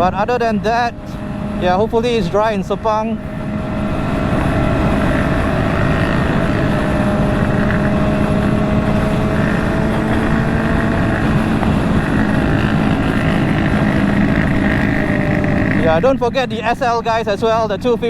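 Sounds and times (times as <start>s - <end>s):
wind rush: 0.0s - 17.0s
motorcycle engine cruising: 0.0s - 18.0s.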